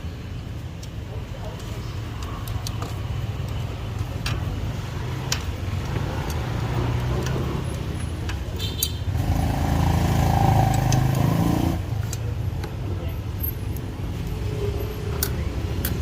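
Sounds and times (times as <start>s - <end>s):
vehicle engines humming: 0.0s - 16.0s
engine close by: 9.1s - 12.1s.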